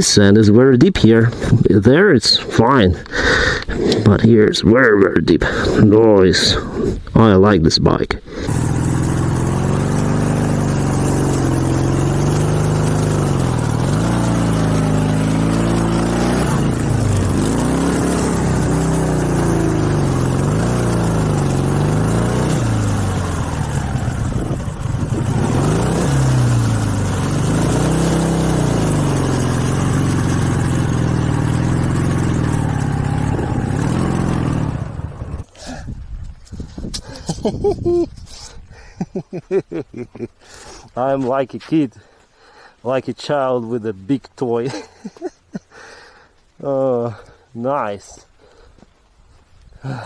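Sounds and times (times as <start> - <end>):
motorcycle engine revving: 8.3 - 35.8.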